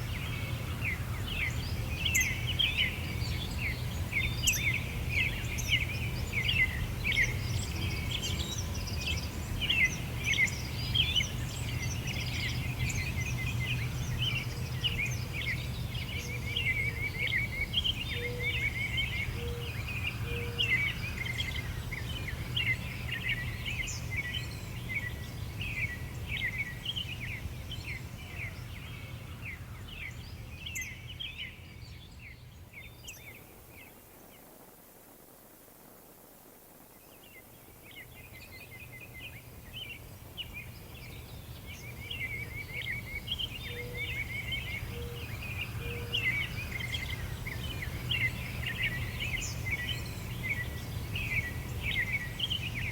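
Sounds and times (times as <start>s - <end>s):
small birds chirping and singing: 37.1s - 52.9s.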